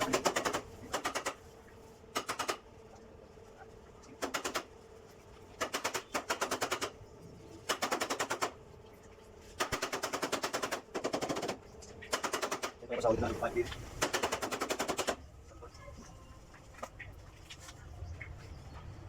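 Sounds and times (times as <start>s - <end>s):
rapid mechanical tapping: 0.0s - 2.9s, 4.0s - 4.8s, 5.4s - 8.7s, 9.5s - 13.1s, 13.7s - 15.3s.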